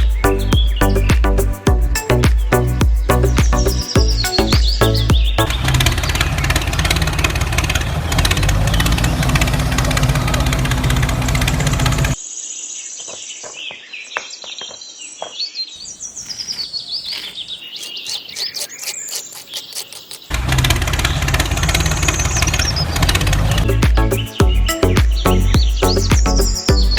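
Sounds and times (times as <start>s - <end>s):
birds chirping: 0.0s - 6.8s, 13.7s - 20.3s, 22.0s - 26.9s.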